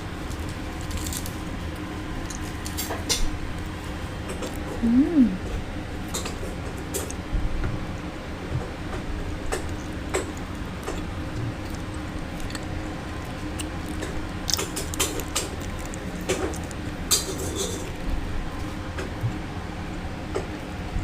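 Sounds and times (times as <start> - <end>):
food crackling: 0.0 - 4.8, 8.7 - 19.5
steady low hum: 0.0 - 21.0
mouth clicks and chewing: 9.5 - 18.1.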